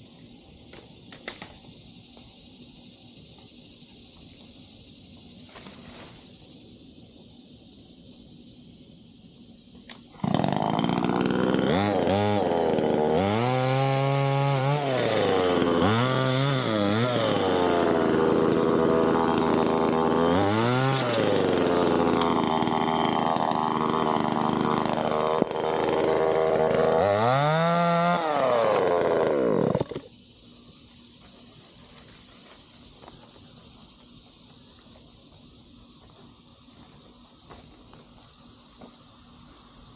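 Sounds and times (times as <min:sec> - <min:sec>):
chainsaw running at high revs: 0:10.1 - 0:30.0.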